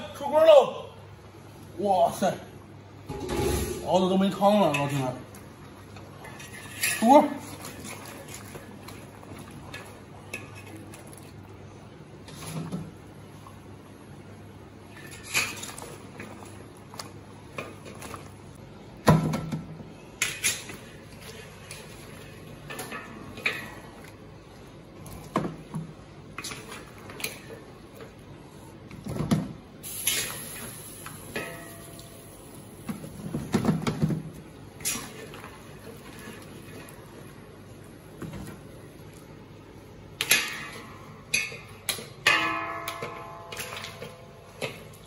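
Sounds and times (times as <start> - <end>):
metal ladle clinking on wok: 31.3 - 32.1, 40.2 - 44.8.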